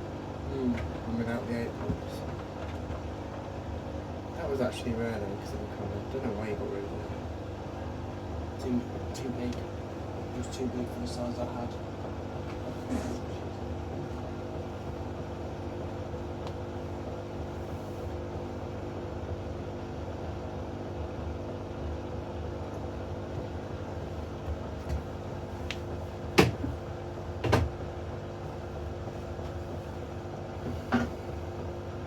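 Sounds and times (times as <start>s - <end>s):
washing machine motor hum: 0.0s - 32.0s
washing machine drum clunks: 26.3s - 27.8s.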